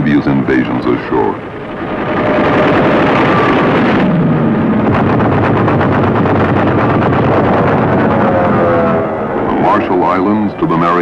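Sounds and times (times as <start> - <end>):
heavy blasts: 0.5 - 11.0
low falling tone: 1.8 - 10.9
rapid gunfire: 4.8 - 8.0.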